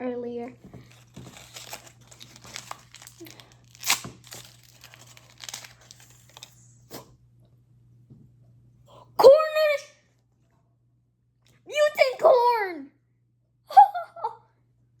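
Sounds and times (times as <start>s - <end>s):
plastic wrapper crinkling and tearing: 0.6s - 6.8s.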